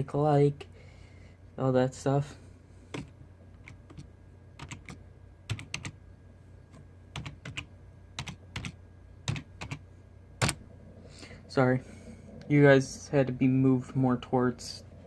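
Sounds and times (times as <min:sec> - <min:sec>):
typing on computer keyboard: 0:02.9 - 0:06.0, 0:07.1 - 0:09.8.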